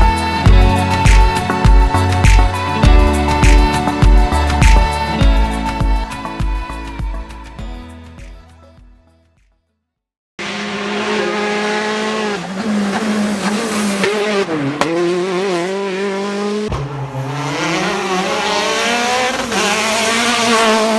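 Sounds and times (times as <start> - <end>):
engine running at high revs: 10.4 - 20.9.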